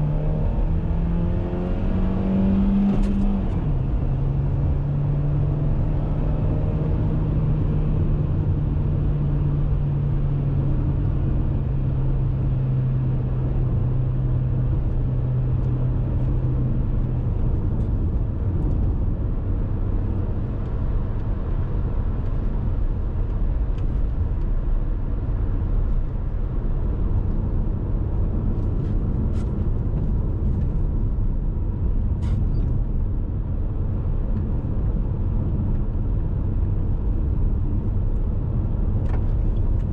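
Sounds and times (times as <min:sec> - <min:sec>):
road and tyre rumble: 0:00.0 - 0:39.9.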